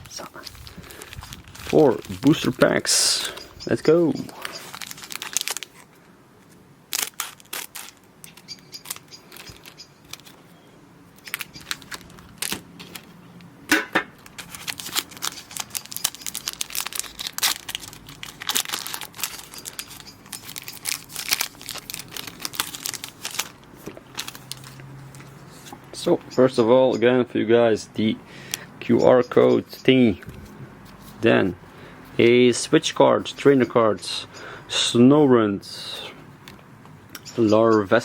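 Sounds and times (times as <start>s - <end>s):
foil pack crinkling and tearing: 0.1s - 3.4s, 4.4s - 10.6s, 11.2s - 13.2s, 14.2s - 25.8s.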